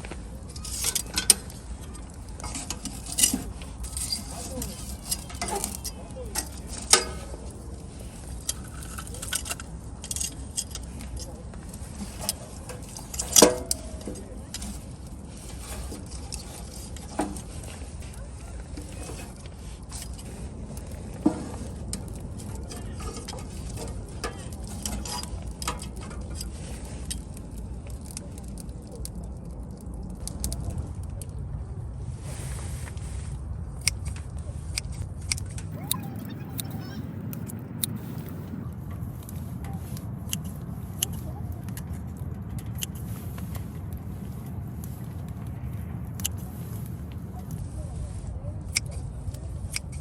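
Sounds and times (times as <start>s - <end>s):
steady low rumble: 0.0s - 50.0s
wood crackling in stove: 0.0s - 50.0s.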